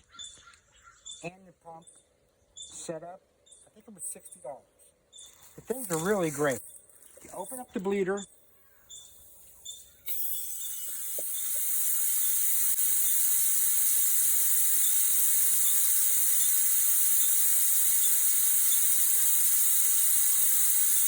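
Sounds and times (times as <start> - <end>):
gas hissing from valve: 9.2 - 21.0.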